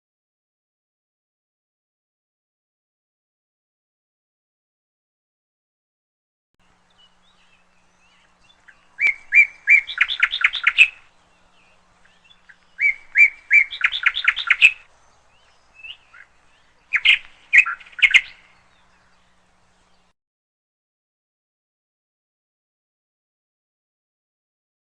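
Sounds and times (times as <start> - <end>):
canary chirping: 7.3 - 14.9, 15.5 - 19.0.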